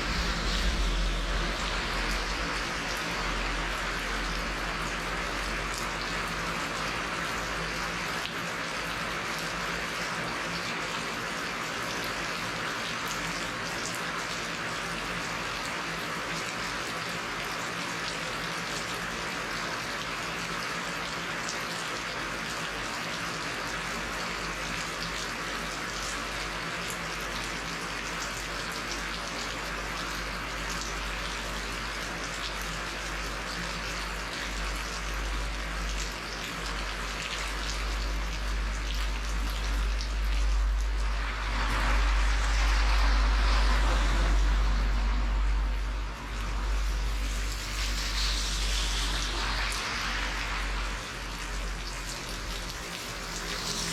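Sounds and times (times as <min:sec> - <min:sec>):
deep low rumble: 0:00.0 - 0:06.2, 0:37.7 - 0:53.9
steady rain falling: 0:00.0 - 0:53.9.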